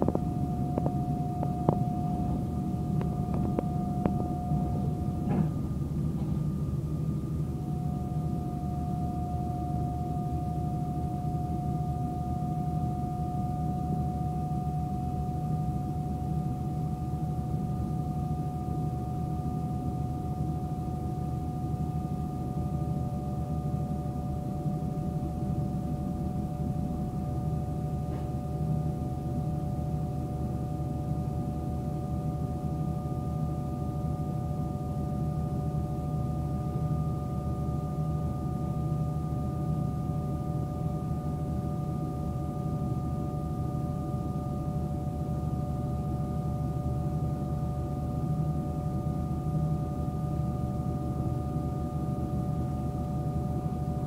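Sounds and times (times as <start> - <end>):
high-pitched electric whine: 0.0 - 5.8.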